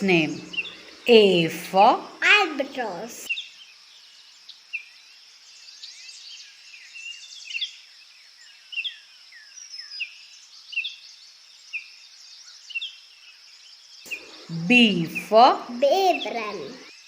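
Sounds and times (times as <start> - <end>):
small songbirds chirping: 0.0 - 17.0
steady high hiss: 14.1 - 17.0.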